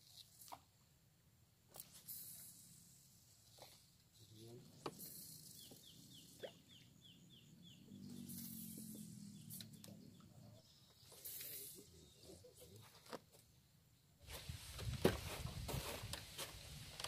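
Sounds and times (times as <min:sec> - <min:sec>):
distant bird chirping: 0:04.4 - 0:12.8.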